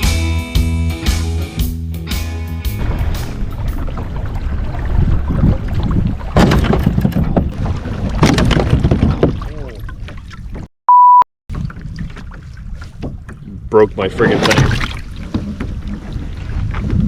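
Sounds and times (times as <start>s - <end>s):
wind on microphone: 2.8s - 9.4s, 11.5s - 17.0s
censor bleep: 10.9s - 11.3s.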